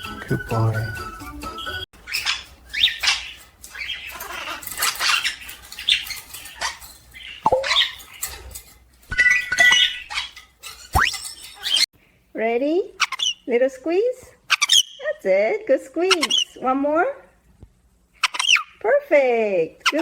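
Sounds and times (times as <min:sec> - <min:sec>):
pet animal high calls and squeaks: 0:02.0 - 0:08.1, 0:09.1 - 0:11.9, 0:13.0 - 0:13.4, 0:16.1 - 0:16.6, 0:18.2 - 0:18.8.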